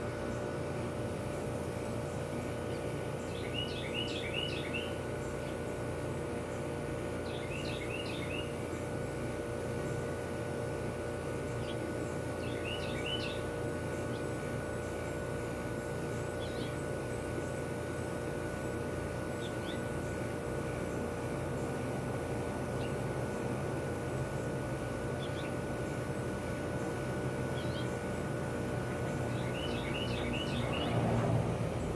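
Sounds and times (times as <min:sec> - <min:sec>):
steady background hum: 0:00.0 - 0:31.9
small bird chirping: 0:02.7 - 0:05.6, 0:12.4 - 0:13.5, 0:27.5 - 0:28.0, 0:29.0 - 0:31.0
songbird chirping: 0:12.4 - 0:13.4, 0:29.0 - 0:31.0
distant traffic hum: 0:19.6 - 0:31.9.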